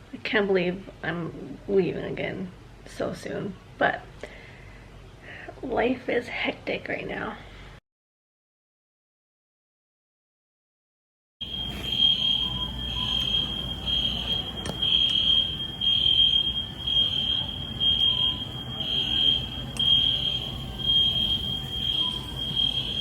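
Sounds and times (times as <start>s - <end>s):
fire alarm beeping: 11.4s - 23.0s.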